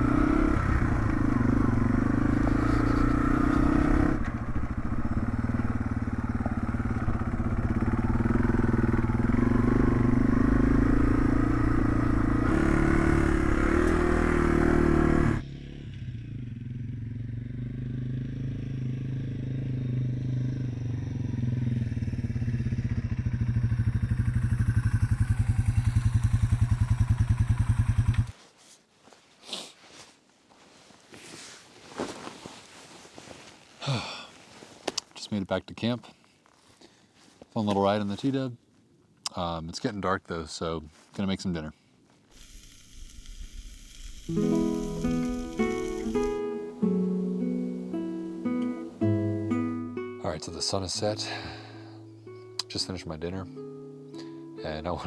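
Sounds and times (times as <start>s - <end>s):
motorcycle engine running: 0.0s - 28.3s, 42.3s - 46.4s.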